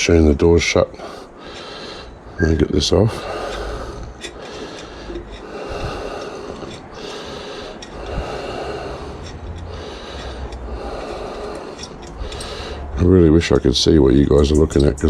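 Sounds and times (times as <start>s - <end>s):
man breathing hard: 1.0s - 2.4s, 3.0s - 13.0s
metal tool clicks: 3.2s - 5.5s, 9.2s - 12.7s, 14.4s - 15.0s.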